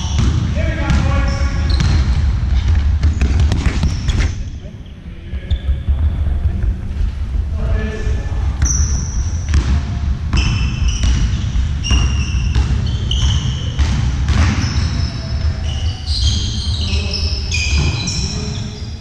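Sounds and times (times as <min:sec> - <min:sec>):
ball bouncing on hall floor: 0:00.0 - 0:04.7, 0:08.5 - 0:16.7, 0:17.5 - 0:18.5
trainers squeaking on court: 0:00.0 - 0:05.9, 0:08.6 - 0:09.6, 0:10.3 - 0:19.0
low hall rumble: 0:00.0 - 0:19.0.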